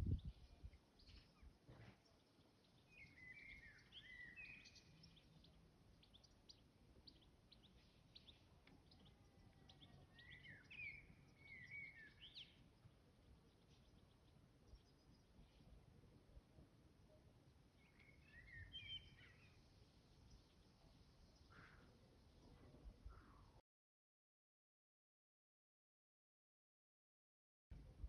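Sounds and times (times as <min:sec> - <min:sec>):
faint bird chirps: 0:00.0 - 0:15.8, 0:17.8 - 0:23.6.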